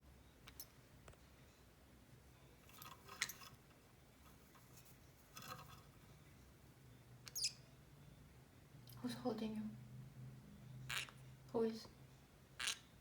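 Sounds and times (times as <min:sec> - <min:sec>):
parrot clicks and rustles: 0:02.6 - 0:06.0.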